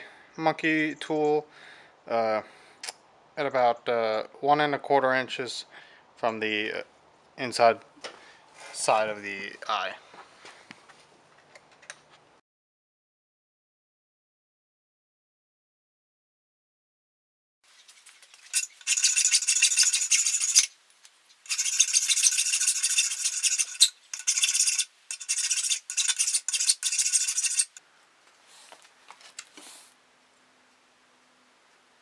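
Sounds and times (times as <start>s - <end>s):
saw rasping through steel: 17.8s - 20.8s, 21.4s - 27.8s.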